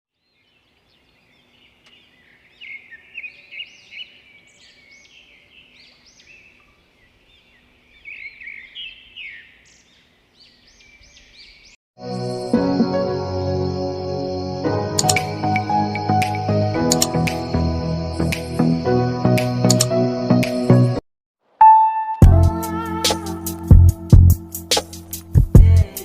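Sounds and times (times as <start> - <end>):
birds chirping and singing: 0.2 - 11.8
music: 12.0 - 21.0, 21.6 - 26.0.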